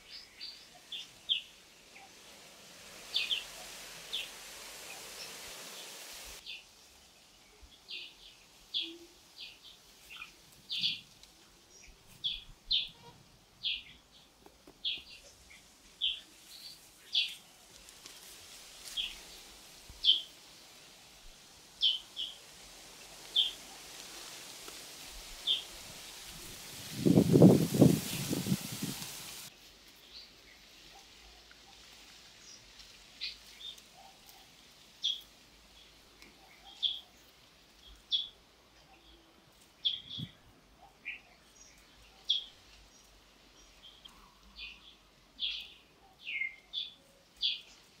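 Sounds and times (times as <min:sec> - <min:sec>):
faint background hiss: 0:00.0 - 0:48.0.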